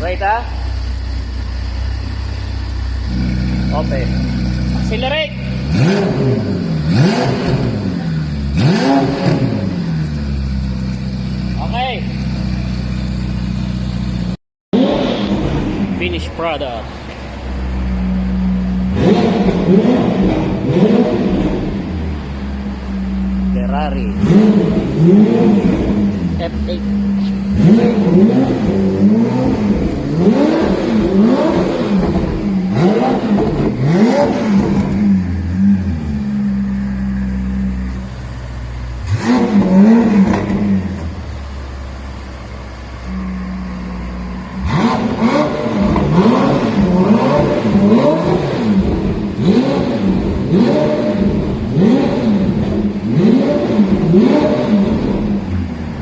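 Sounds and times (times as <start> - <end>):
car engine idling: 0.0 - 56.0
engine revving in throttle blips: 0.0 - 56.0.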